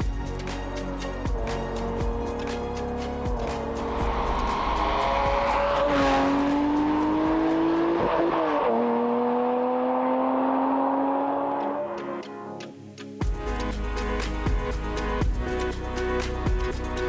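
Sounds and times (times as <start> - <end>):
car engine accelerating: 1.3 - 12.2.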